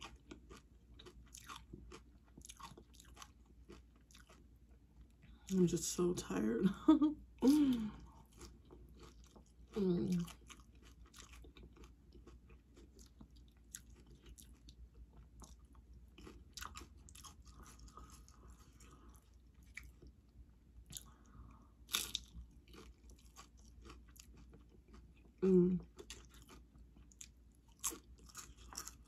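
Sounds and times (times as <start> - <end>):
chewing crunchy chips: 0.0 - 5.6, 7.4 - 29.0.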